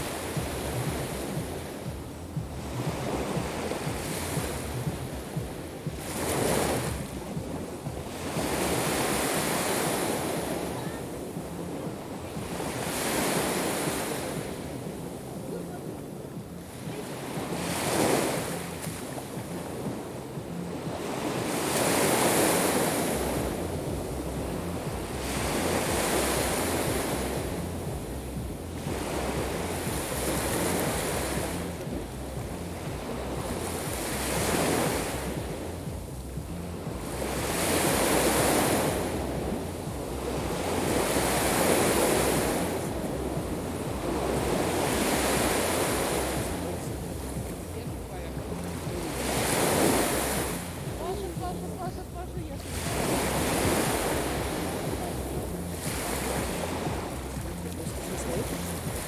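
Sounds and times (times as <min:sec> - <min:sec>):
sea waves breaking on shore: 0:00.0 - 0:59.0
wind rumbling on microphone: 0:00.0 - 0:59.0.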